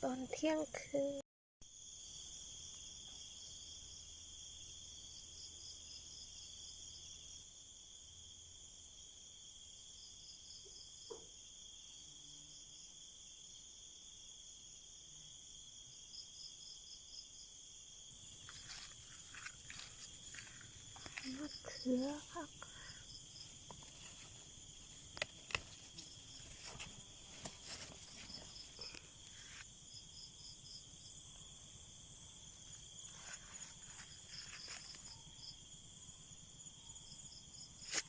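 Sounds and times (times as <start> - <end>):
crickets trilling: 1.6 - 38.0
soft clicks and rustles: 23.6 - 29.6.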